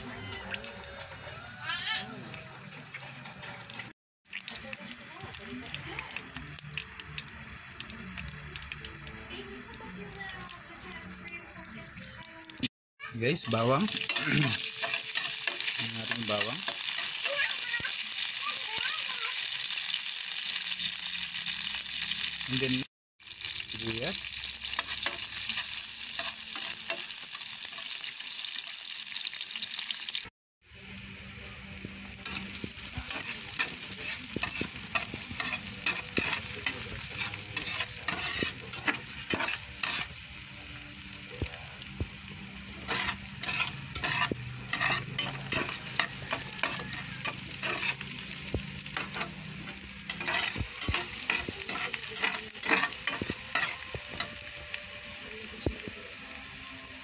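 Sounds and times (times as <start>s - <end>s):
garlic and onion sizzling in oil: 0.0s - 57.0s
spatula scraping and tapping pan: 13.9s - 17.3s, 32.3s - 40.2s, 42.8s - 54.4s.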